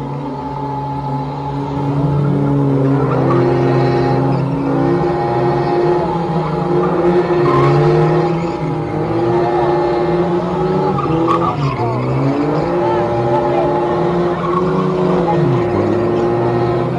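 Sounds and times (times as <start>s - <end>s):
car engines revving hard: 0.0s - 16.9s
tyres screeching while sliding: 3.0s - 9.7s.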